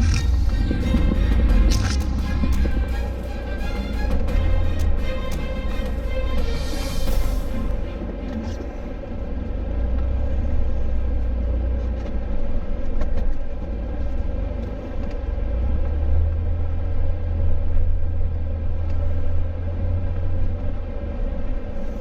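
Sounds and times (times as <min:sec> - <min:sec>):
jeep engine and tyres rumbling: 0:00.0 - 0:22.0.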